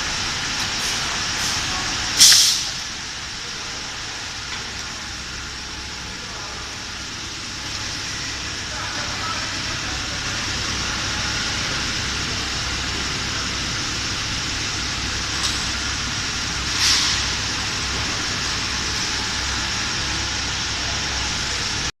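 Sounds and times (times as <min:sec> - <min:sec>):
welding machine humming: 0:00.0 - 0:21.9
hiss bursts: 0:00.8 - 0:02.8.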